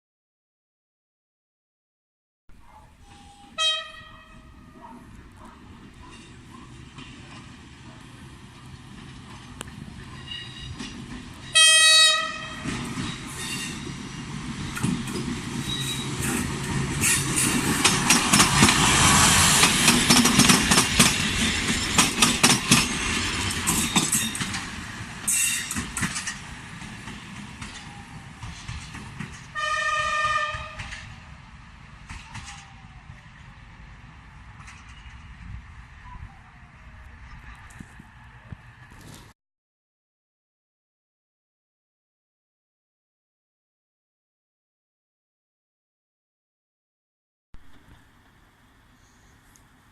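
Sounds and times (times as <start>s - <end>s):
train horn blasts: 3.0s - 4.9s, 11.5s - 12.8s, 29.5s - 31.0s
train wheels clacking over rail joints: 5.2s - 29.6s, 30.2s - 31.2s.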